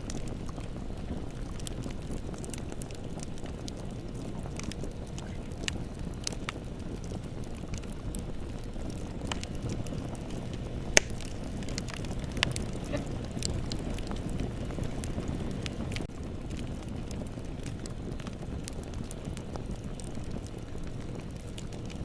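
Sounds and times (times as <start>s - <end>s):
bonfire flames rushing: 0.0s - 22.0s
fire crackles and snaps: 0.0s - 22.0s
sharp pop from fire: 11.0s - 12.6s.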